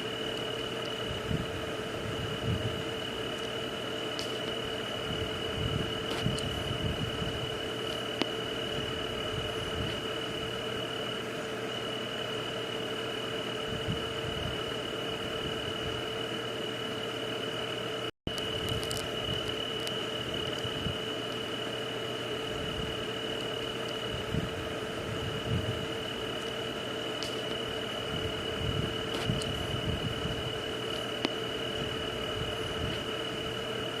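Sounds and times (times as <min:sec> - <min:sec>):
low throbs: 0:00.0 - 0:11.2, 0:18.4 - 0:34.0
high insect drone: 0:00.0 - 0:34.0.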